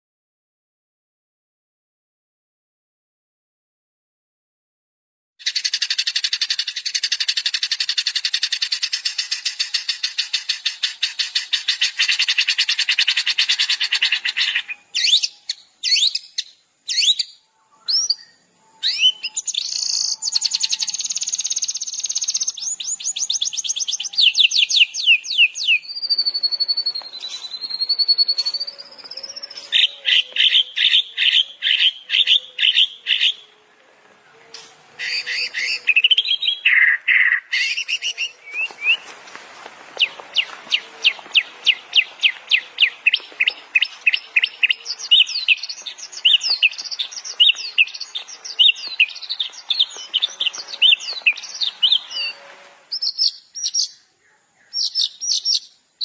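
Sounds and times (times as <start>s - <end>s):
long wavering bird whistle: 5.4s - 33.5s, 40.7s - 54.0s
songbirds chirping and trilling: 5.4s - 56.0s.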